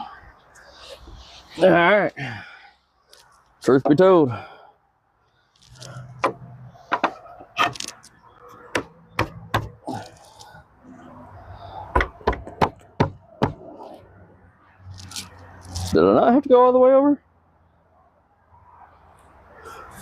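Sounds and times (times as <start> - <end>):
wooden knocks and clunks: 6.2 - 10.0, 11.9 - 13.7.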